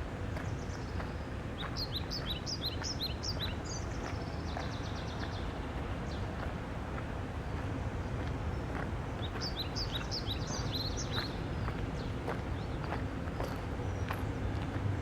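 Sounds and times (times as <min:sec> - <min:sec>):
songbird singing: 0:00.4 - 0:06.3, 0:08.4 - 0:14.4.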